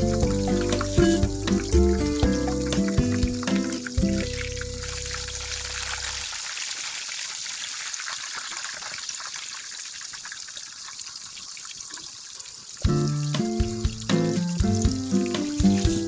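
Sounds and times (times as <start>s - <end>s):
background music: 0.0s - 5.6s, 12.9s - 16.0s
cutlets sizzling in hot oil: 0.0s - 16.0s.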